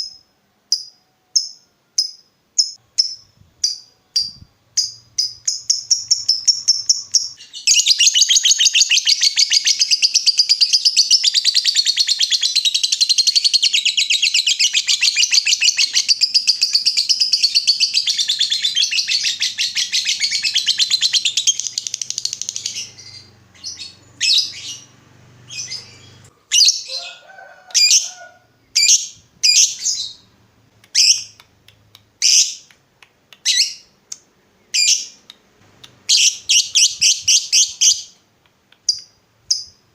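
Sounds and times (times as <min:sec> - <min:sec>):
lovebird rapid high chattering: 0:00.8 - 0:24.9.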